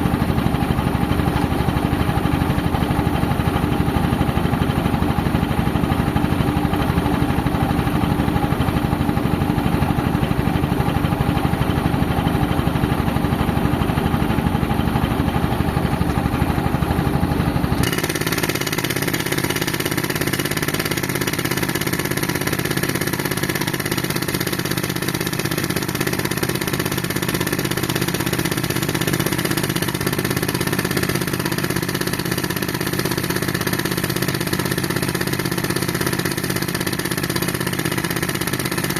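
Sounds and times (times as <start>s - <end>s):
pneumatic breaker hammering concrete: 0.0s - 38.9s
compressor running with hiss: 16.6s - 24.0s.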